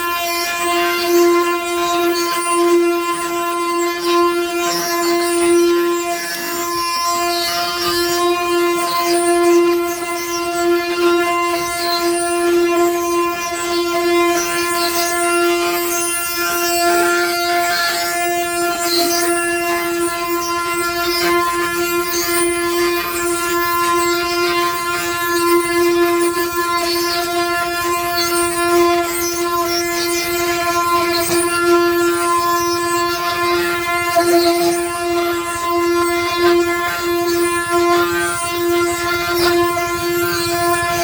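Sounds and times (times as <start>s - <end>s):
wooden cart axle whining: 27.8s - 41.0s.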